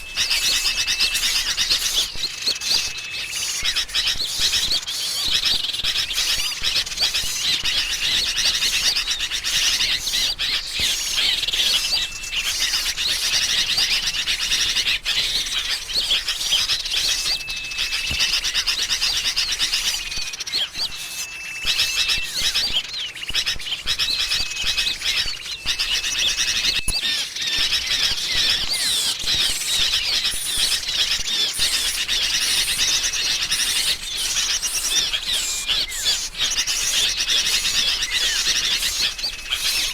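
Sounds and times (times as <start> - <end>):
level whistled notes: 0.0 - 5.5, 10.1 - 23.5
birds chattering and chirping: 0.0 - 39.9.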